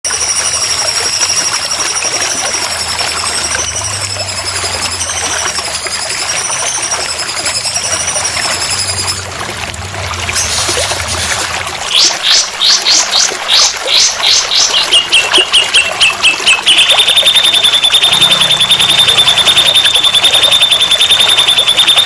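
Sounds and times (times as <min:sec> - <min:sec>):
thin high wavering tone: 0:00.1 - 0:09.4, 0:13.8 - 0:22.0
water trickling: 0:00.1 - 0:22.0.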